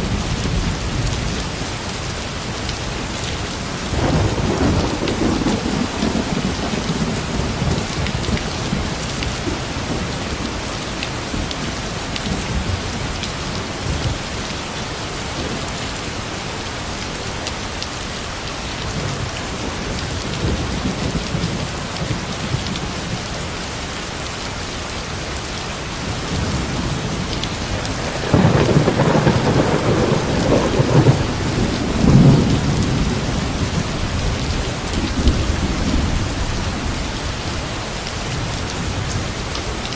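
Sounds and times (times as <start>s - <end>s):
heavy rain falling: 0.0s - 39.9s
thunder rumbling: 3.8s - 14.4s, 26.0s - 37.7s.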